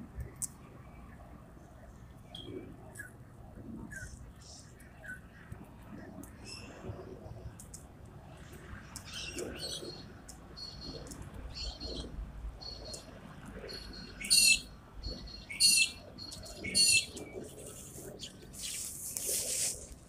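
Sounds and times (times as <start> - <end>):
birds chirping: 9.0 - 19.8
loud sharp bird calls: 13.7 - 17.5.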